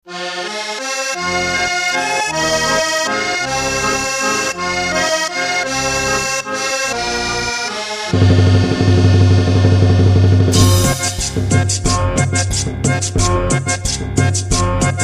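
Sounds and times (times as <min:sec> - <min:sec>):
accordion playing cumbia melody: 0:00.0 - 0:15.0
heavy bass: 0:08.1 - 0:15.0.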